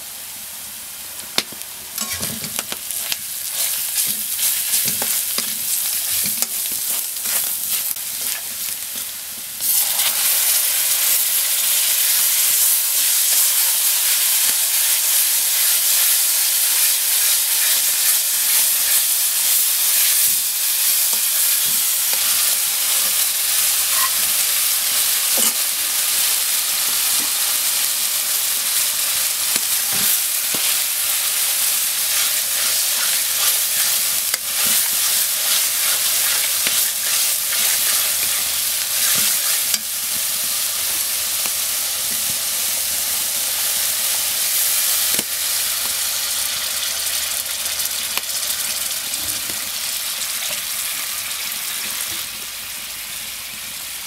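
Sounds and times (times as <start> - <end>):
food sizzling in oil: 0.0 - 54.0
metal spatula scraping pan: 23.7 - 24.3, 32.1 - 39.9.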